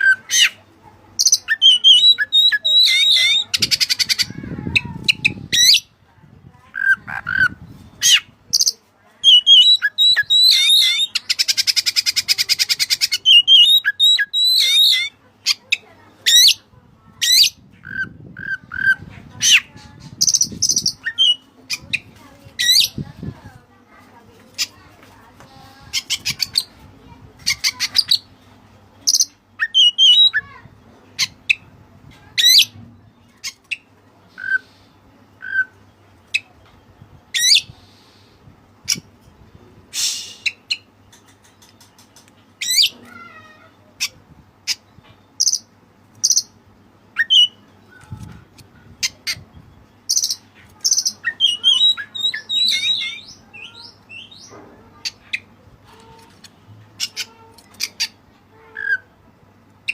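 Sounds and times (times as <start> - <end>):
bird singing varied song: 1.2 - 5.9, 6.8 - 23.1, 29.0 - 30.5, 44.7 - 55.6.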